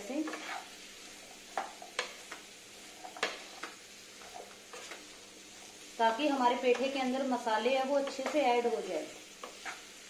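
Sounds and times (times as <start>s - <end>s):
spatula scraping pan: 0.0s - 5.8s, 7.8s - 10.0s
pumpkin sizzling in pan: 0.0s - 10.0s.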